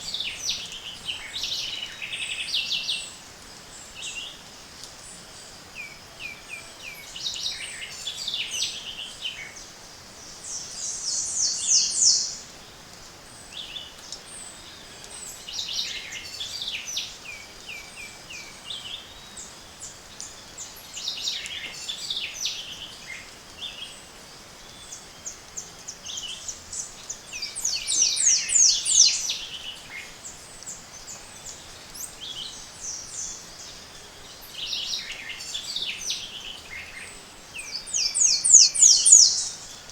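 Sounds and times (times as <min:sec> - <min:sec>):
birds singing: 0:13.4 - 0:39.9.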